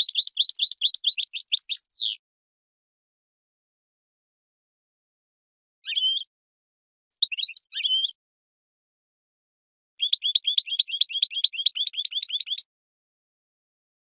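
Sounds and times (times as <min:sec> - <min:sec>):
goldfinch singing: 0:00.0 - 0:02.2, 0:05.8 - 0:06.3, 0:07.1 - 0:08.2, 0:10.0 - 0:12.7.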